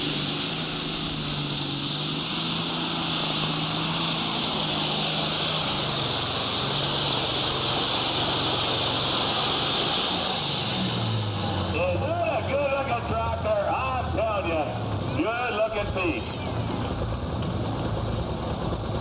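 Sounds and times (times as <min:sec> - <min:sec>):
high-pitched turbo rush: 0:00.0 - 0:13.5
diesel tractor engine under load: 0:00.0 - 0:19.0.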